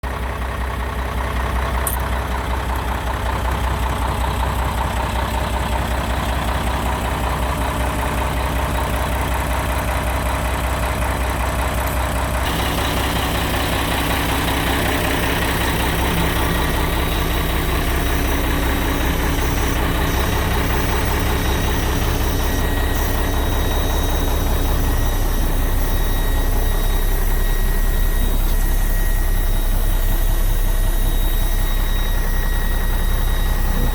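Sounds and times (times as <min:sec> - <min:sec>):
diesel engine idling: 0:00.0 - 0:33.9
faint whine: 0:11.9 - 0:33.9.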